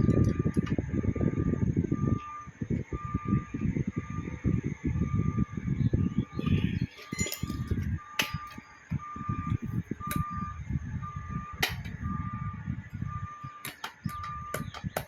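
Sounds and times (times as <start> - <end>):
electronic beeps: 0.0 - 15.0
low rumbling: 0.0 - 15.0
metallic clicks and knocks: 6.9 - 9.0, 11.6 - 12.0, 13.4 - 15.0.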